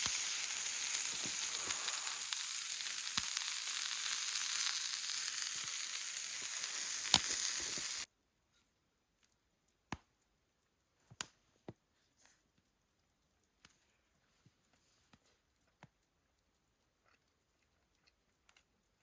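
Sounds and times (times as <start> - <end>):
food sizzling in a frying pan: 0.0 - 8.1.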